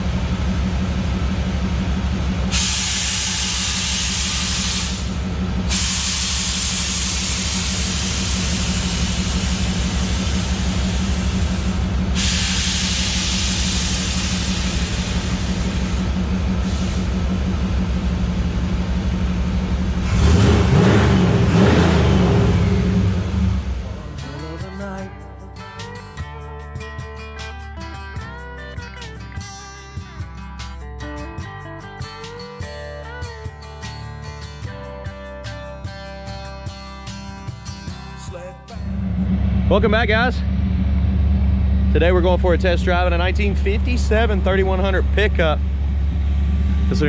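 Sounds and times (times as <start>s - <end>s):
vehicle engine rumbling: 0.0s - 47.0s
hiss: 2.5s - 5.1s, 5.7s - 17.1s.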